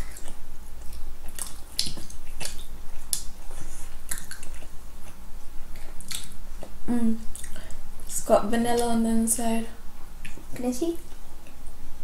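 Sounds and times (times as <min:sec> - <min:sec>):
mouth smacks and squishes: 0:00.0 - 0:04.7, 0:06.0 - 0:07.6
chewing soft doughnuts: 0:00.0 - 0:08.9.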